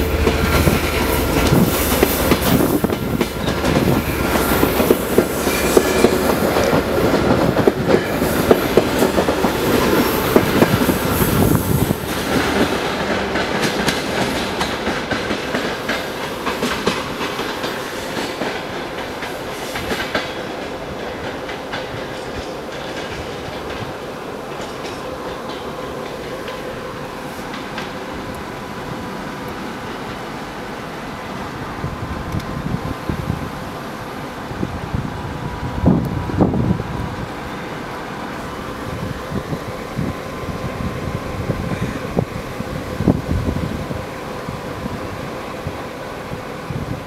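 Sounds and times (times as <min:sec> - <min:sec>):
train wheels clicking over rails: 0:00.0 - 0:31.5.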